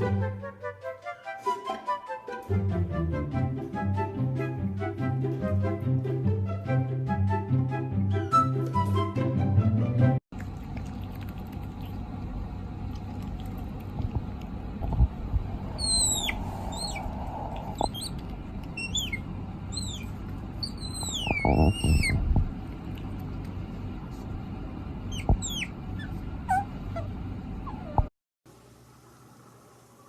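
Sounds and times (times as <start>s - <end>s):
low background hum: 2.4s - 30.0s
small animal squeaky calls: 15.7s - 22.2s, 25.1s - 28.0s.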